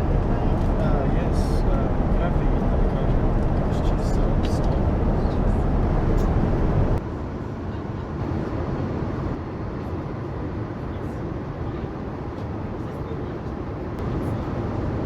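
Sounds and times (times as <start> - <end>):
airliner cabin rushing noise: 0.0 - 7.0.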